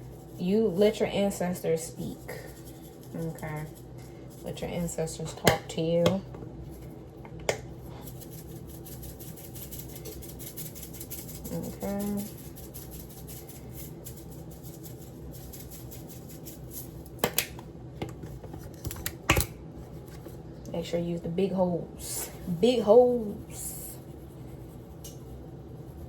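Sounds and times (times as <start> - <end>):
seasoning shaker rattling: 0.0 - 6.0, 6.6 - 17.6.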